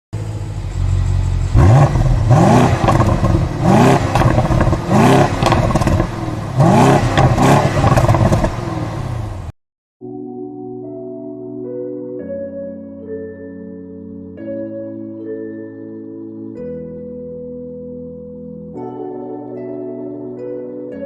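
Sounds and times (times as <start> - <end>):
car engine idling and revving: 0.2 - 9.5.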